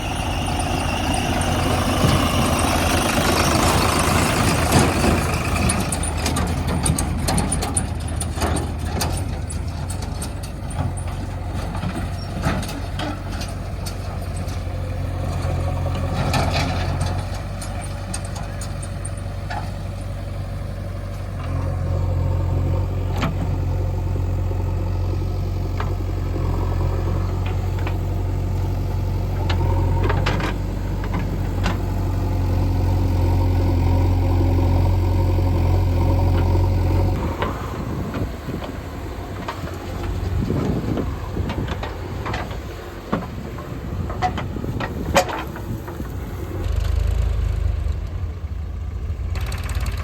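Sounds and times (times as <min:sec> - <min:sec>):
knocks and clanks: 0:00.0 - 0:20.1, 0:37.2 - 0:47.0
diesel engine running: 0:00.0 - 0:50.0.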